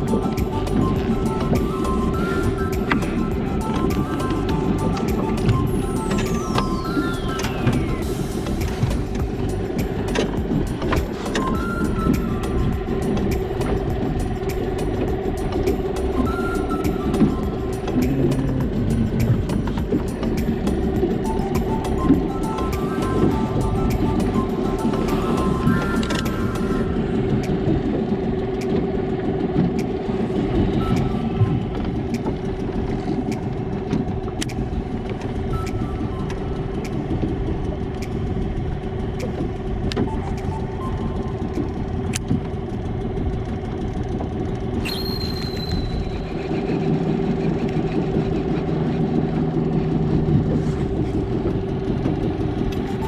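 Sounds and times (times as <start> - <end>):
short high tone: 0.0 - 27.8, 44.8 - 46.7
engine humming: 0.0 - 44.9.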